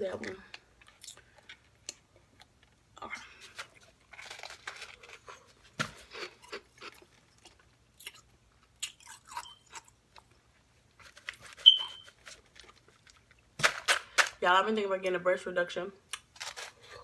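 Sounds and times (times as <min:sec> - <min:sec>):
chewing and crunching food: 0:00.1 - 0:14.3.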